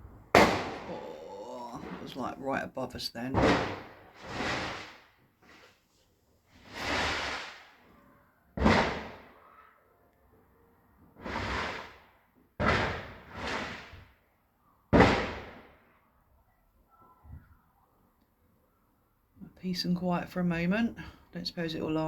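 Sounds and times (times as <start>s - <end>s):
fireworks exploding: 0.0s - 2.4s, 3.4s - 5.7s, 6.6s - 7.9s, 11.2s - 12.1s.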